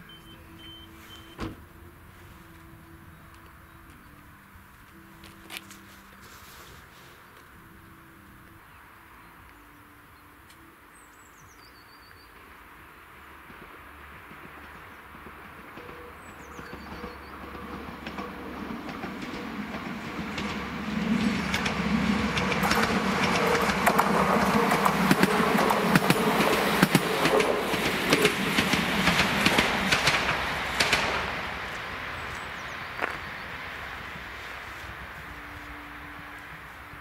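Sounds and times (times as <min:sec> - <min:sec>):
diesel train rumble and engine hum: 0:00.0 - 0:37.0
wheel clicks over rail joints: 0:14.4 - 0:32.0.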